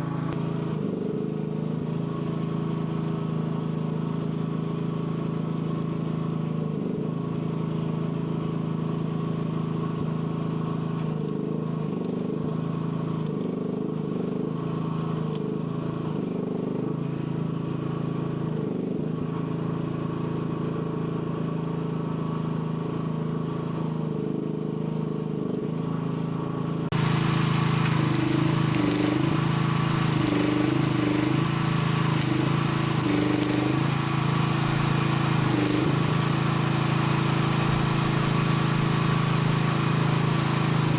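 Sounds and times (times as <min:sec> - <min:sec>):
mini excavator engine under load: 0:26.9 - 0:40.9.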